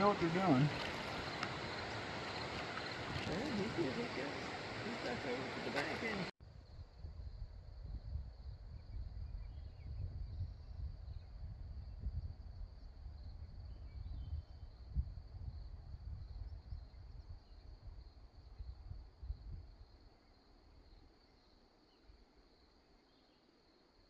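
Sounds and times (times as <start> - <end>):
insects trilling: 0.0 - 6.3
wind rumble on microphone: 0.0 - 20.1.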